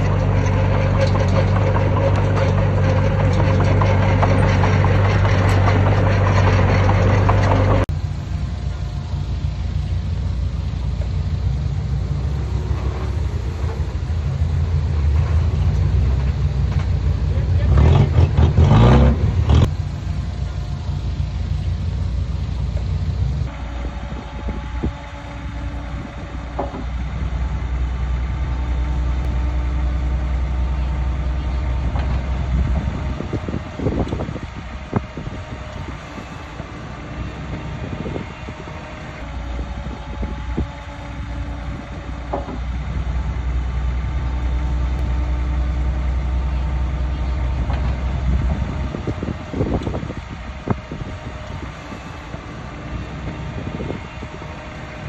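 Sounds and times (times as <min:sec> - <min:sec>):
metal clanks and knocks: 0:00.0 - 0:07.9, 0:25.8 - 0:27.1, 0:39.9 - 0:42.8
bulldozer diesel engine rumbling: 0:00.0 - 0:55.0.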